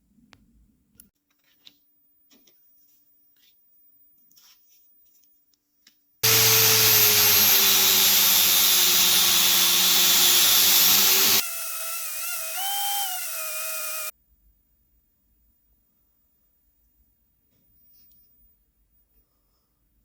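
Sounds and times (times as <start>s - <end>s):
power tool grinding: 6.2s - 14.1s
quiet motor whine: 6.2s - 14.1s.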